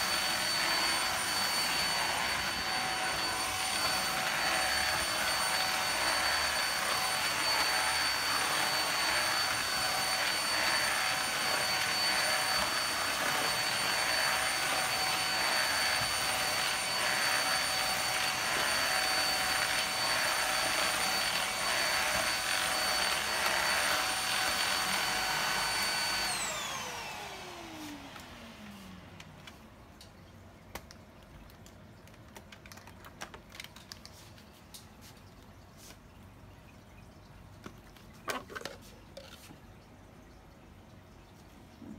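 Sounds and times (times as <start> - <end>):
handheld vacuum cleaner motor whining: 0.0 - 29.5.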